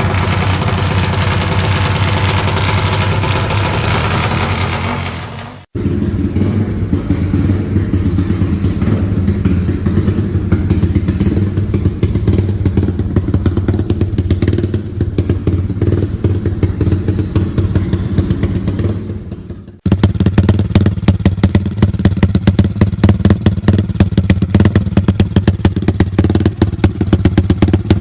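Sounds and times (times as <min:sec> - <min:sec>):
dry clutch rattle: 0:00.0 - 0:05.8, 0:07.0 - 0:28.0
motorcycle engine idling: 0:00.0 - 0:28.0.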